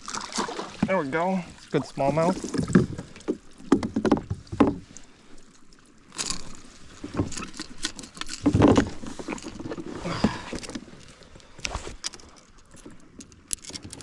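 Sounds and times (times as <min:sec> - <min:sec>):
kayak gear knocking and rattling: 0:02.0 - 0:05.0, 0:06.1 - 0:14.0.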